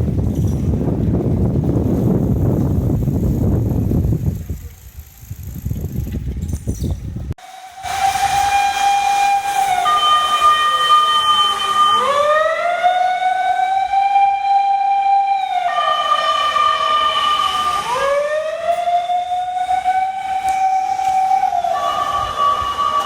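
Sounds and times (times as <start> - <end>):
emergency vehicle siren: 7.4 - 23.0.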